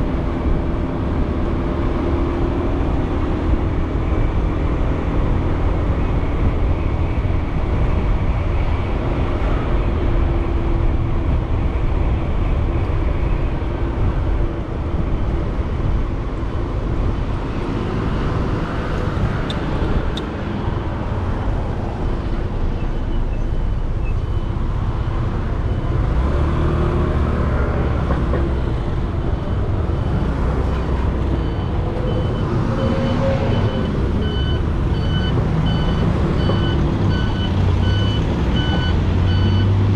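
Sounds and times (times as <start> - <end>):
road traffic: 0.0 - 39.9
wind rumble: 0.0 - 39.9
truck reversing alarm beeping: 29.4 - 39.8.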